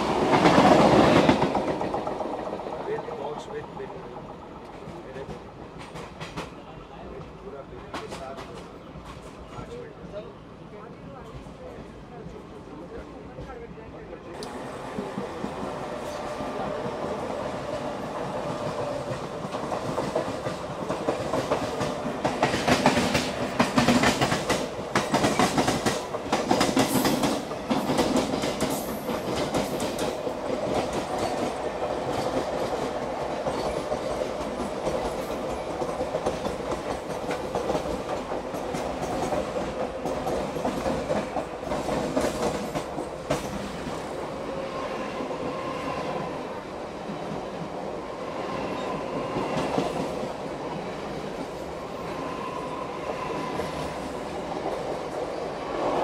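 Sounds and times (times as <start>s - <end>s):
train wheels clattering: 0.0s - 9.8s, 14.4s - 44.2s.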